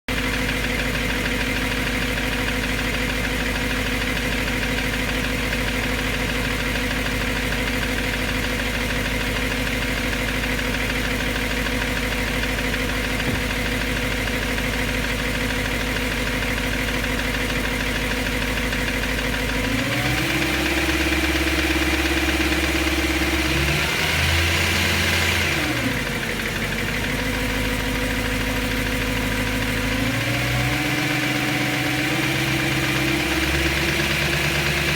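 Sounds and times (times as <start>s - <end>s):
car engine idling: 0.1s - 34.9s
engine ticking noise: 0.1s - 34.9s
engine revving: 19.6s - 26.2s, 29.6s - 34.9s.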